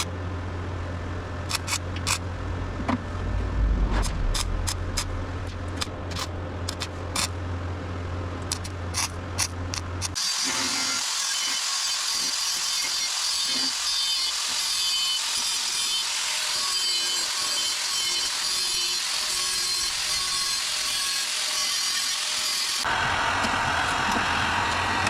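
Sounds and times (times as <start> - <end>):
power tool on bare metal: 10.0 - 25.0.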